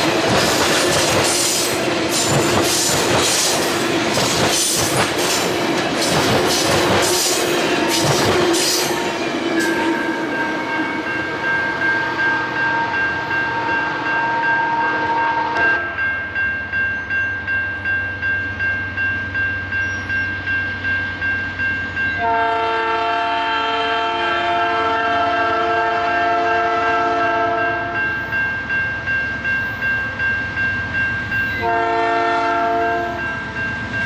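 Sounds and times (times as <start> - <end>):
locomotive air horn chords: 11.9 - 16.0, 22.2 - 27.9, 31.6 - 33.2.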